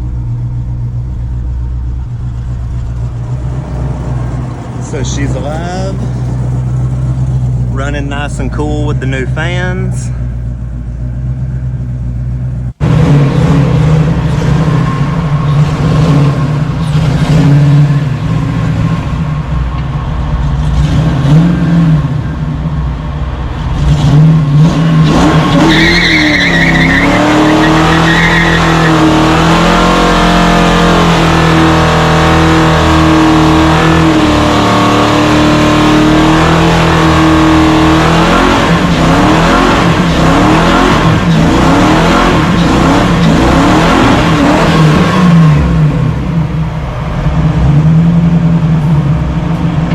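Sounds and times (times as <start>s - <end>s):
car engine revving: 0.0s - 49.9s
tire squeal: 23.8s - 45.2s.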